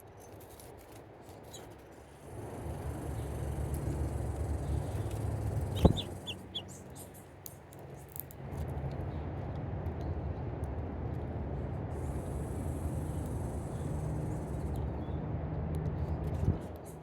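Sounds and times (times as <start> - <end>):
bird calling: 4.7 - 7.1.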